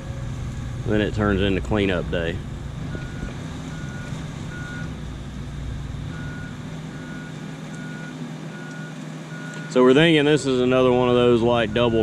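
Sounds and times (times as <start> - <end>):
excavator diesel engine running: 0.0 - 12.0
travel alarm beeping: 2.9 - 4.9, 6.1 - 9.8, 11.6 - 12.0.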